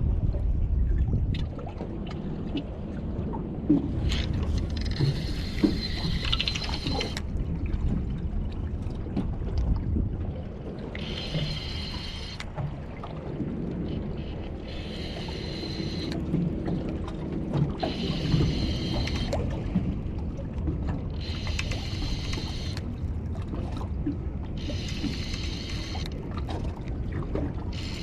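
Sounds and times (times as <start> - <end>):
water sloshing around rocks: 0.0 - 28.0
wind rumbling on microphone: 0.0 - 28.0
high whirring sound: 14.7 - 16.2.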